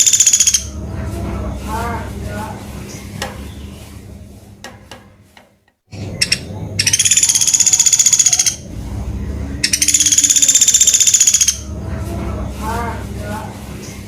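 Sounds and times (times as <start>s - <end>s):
woodpecker rattling trill calls: 0.0s - 0.7s, 6.1s - 8.6s, 9.6s - 11.7s.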